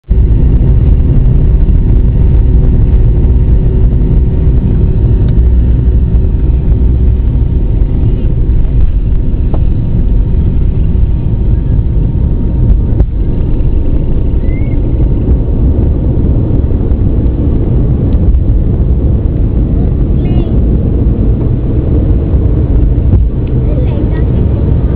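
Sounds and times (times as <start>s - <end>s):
jet engines rumbling: 0.0s - 24.9s.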